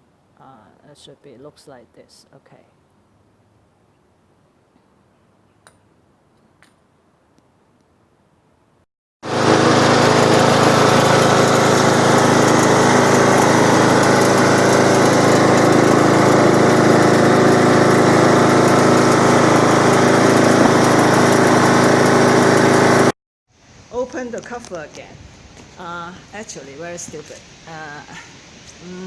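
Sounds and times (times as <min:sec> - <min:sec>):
lawn tractor engine running: 0:09.2 - 0:23.1.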